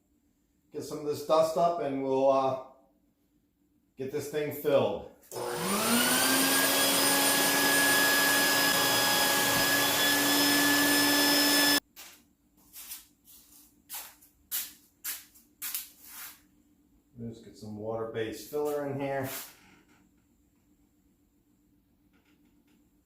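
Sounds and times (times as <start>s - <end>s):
vacuum cleaner motor whine: 5.3s - 11.8s
short scraping sounds: 12.7s - 16.4s, 18.6s - 19.6s.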